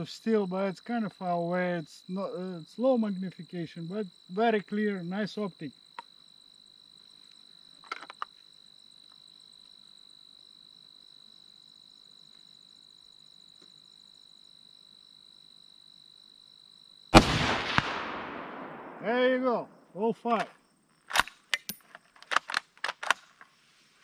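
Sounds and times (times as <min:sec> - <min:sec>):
crickets chirping: 0:00.0 - 0:24.0
rifle shot with echo: 0:17.1 - 0:19.7.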